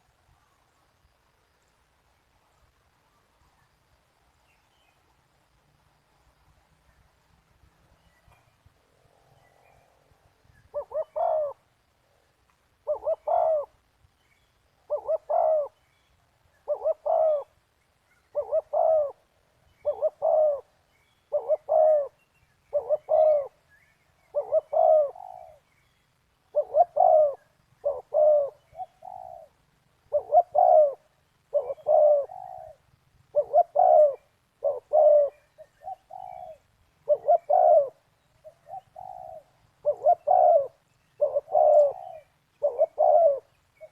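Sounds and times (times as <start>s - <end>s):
dove cooing: 10.6s - 11.8s, 12.8s - 13.8s, 14.8s - 15.8s, 16.6s - 17.6s, 18.2s - 23.6s, 24.2s - 25.7s, 26.4s - 43.9s.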